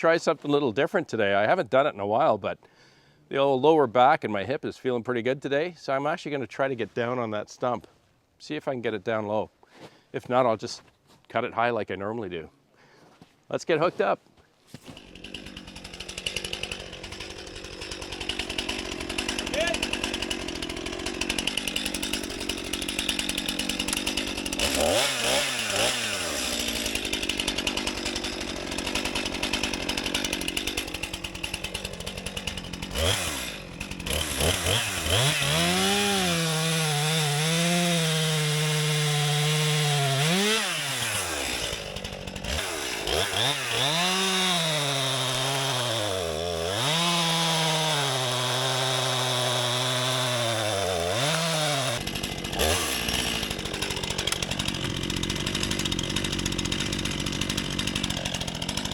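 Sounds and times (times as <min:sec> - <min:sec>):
chainsaw revving and cutting: 0:14.8 - 0:58.9.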